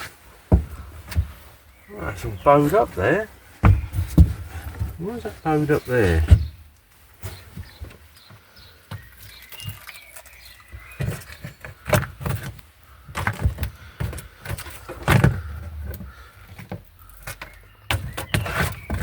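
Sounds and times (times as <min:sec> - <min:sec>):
heavy thumps: 0:00.5 - 0:06.7
knocks and clatters of tools: 0:03.6 - 0:05.2, 0:11.0 - 0:19.0.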